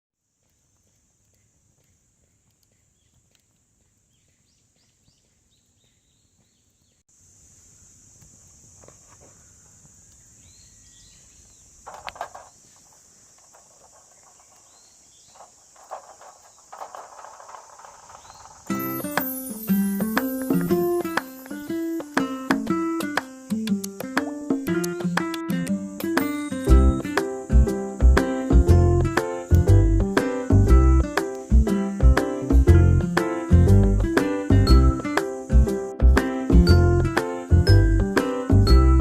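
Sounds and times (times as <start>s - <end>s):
insect drone: 7.1s - 38.9s
bird chirps: 9.3s - 11.7s, 14.1s - 15.6s
knocks or rustles: 11.8s - 26.3s.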